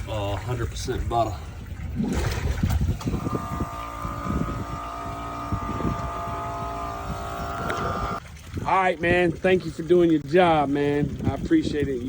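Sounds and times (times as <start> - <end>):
motor whining steadily: 3.0 - 8.2.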